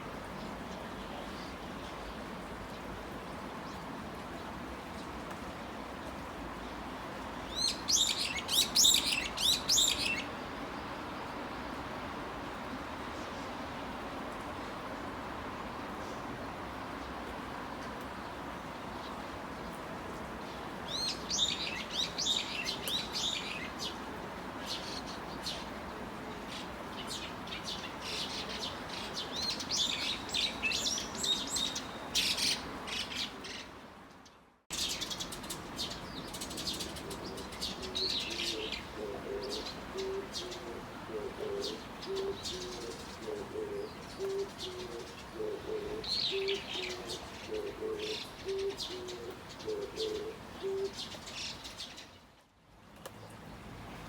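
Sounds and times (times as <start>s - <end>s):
rain and rushing water: 0.0s - 54.0s
small birds chirping: 7.4s - 11.7s, 20.4s - 52.4s
dove cooing: 36.4s - 51.2s.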